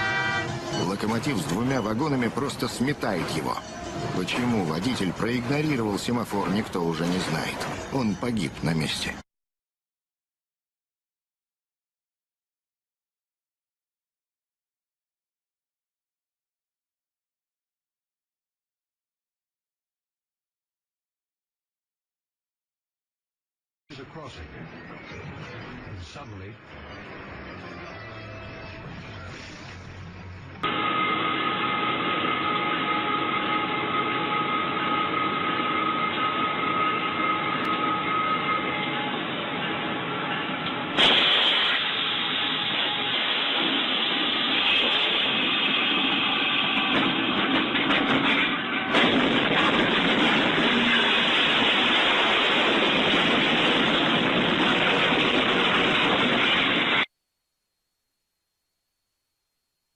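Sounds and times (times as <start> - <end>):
train running: 0.0 - 9.2, 25.2 - 57.1
thin steady whine: 25.7 - 47.2, 49.9 - 59.9.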